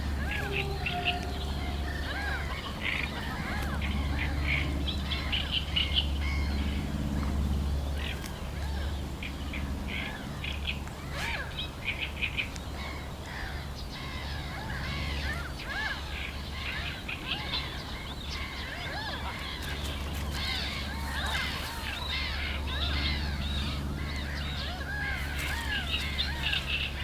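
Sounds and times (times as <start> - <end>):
birds chirping and calling: 0.0 - 6.7, 11.1 - 27.0
steady low rumble: 0.0 - 11.0.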